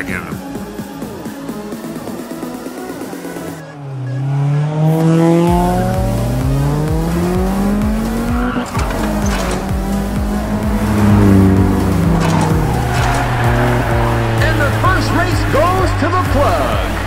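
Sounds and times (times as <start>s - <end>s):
background music with steady beat: 0.0s - 4.1s, 5.0s - 17.0s
race car engine revving: 1.8s - 17.0s
tyre screech: 12.1s - 15.1s.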